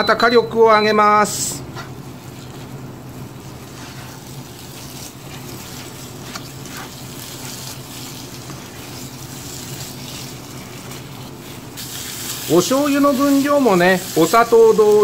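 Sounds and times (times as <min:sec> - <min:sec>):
food sizzling in a frying pan: 0:03.1 - 0:15.0
spatula scraping a pan: 0:03.4 - 0:15.0.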